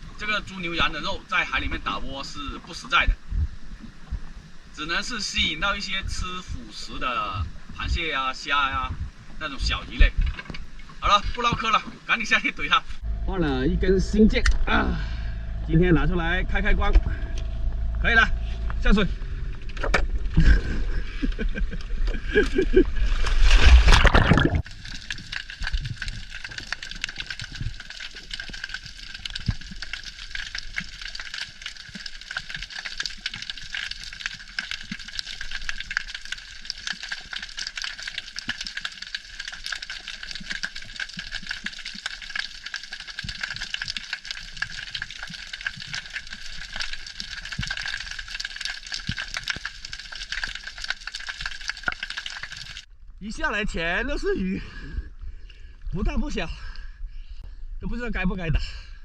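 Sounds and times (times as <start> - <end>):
underwater hiss and crackling: 0.0 - 13.0, 18.5 - 52.9
diver splashing into water: 23.0 - 24.7.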